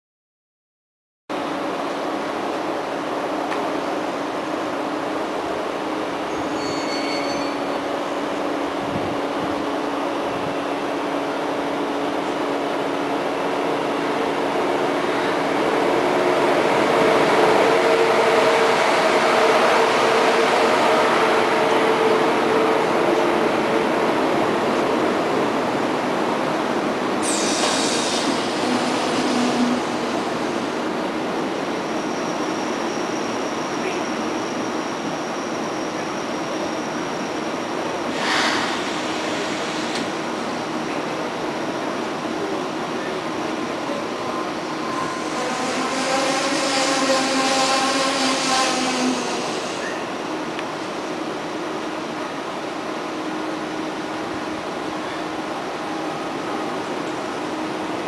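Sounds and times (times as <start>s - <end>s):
train rolling rumble: 1.4s - 58.0s
high-pitched metallic squeal: 6.3s - 7.9s, 44.2s - 50.1s
wheels hissing on rail: 26.0s - 52.3s.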